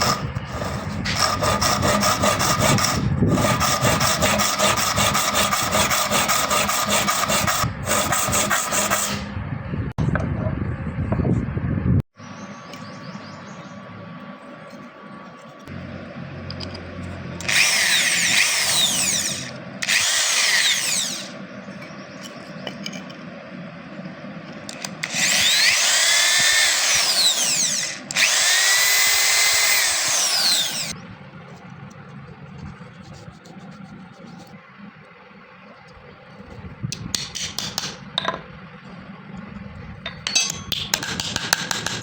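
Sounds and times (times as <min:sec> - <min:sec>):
electric power tool running: 0:15.7 - 0:21.4, 0:24.7 - 0:31.0.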